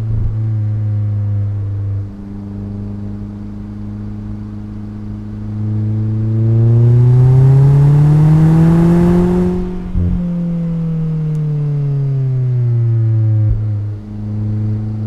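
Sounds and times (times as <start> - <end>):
car engine accelerating: 3.4 - 12.4.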